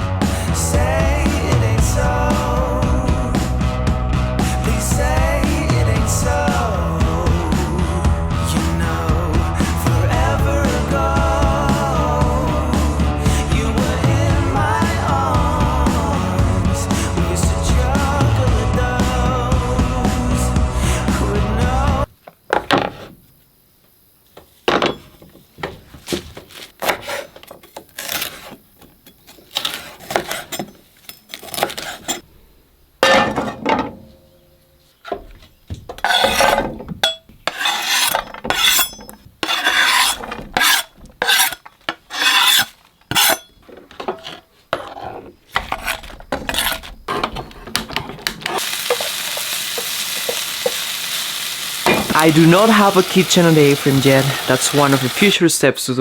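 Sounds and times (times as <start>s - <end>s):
utensils scraping pans: 35.9s - 50.8s
food sizzling in a pan: 48.5s - 55.4s.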